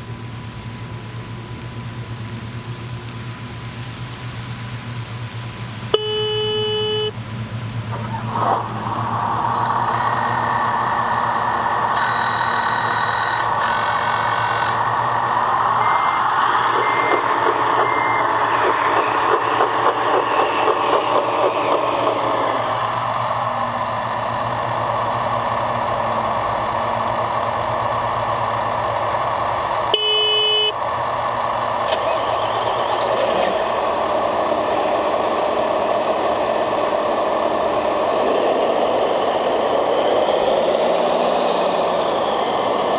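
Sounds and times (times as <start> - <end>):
electric motors whining: 0.0 - 42.9
horn-like tone: 5.9 - 7.2, 29.9 - 30.8
reversing beeps: 5.9 - 7.2, 7.9 - 23.0, 29.9 - 30.8.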